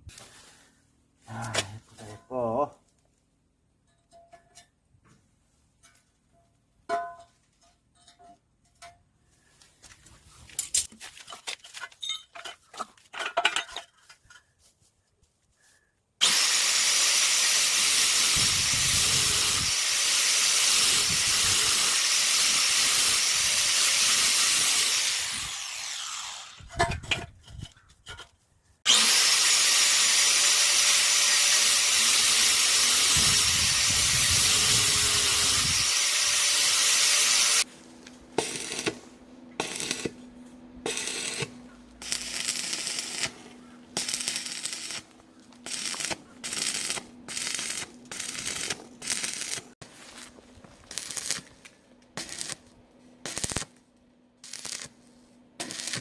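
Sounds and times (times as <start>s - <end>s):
power tool cutting with high whine: 16.2s - 26.6s, 28.9s - 37.6s.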